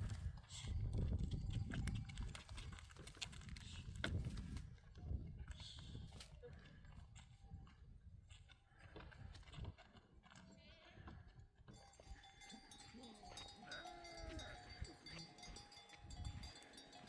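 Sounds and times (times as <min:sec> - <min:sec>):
sheep and goats bleating: 0:11.8 - 0:17.0.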